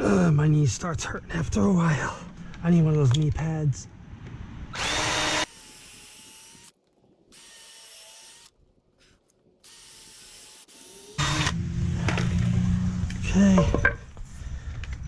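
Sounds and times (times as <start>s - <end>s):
power drill driving screws: 4.8s - 8.5s, 9.6s - 11.6s.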